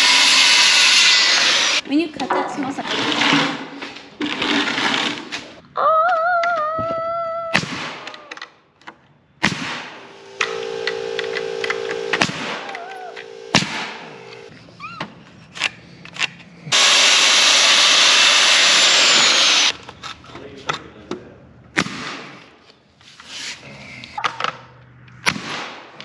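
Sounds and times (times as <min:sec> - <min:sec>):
power tool cutting: 0:00.0 - 0:01.8, 0:09.8 - 0:14.5, 0:16.7 - 0:19.8
power tool hum: 0:00.0 - 0:01.8, 0:09.5 - 0:14.5, 0:16.7 - 0:19.8.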